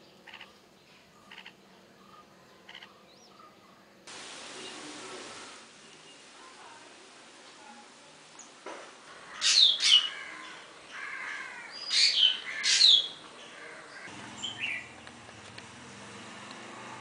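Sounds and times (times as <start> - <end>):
bird calling: 1.2 - 3.7, 9.1 - 15.0.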